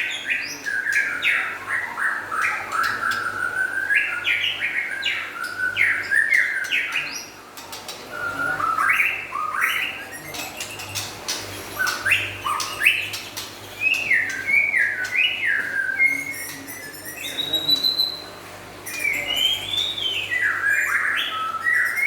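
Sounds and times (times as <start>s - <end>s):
bird song with whistled notes: 0.0s - 22.0s
bird clicking chatter: 6.6s - 8.1s, 10.2s - 15.4s.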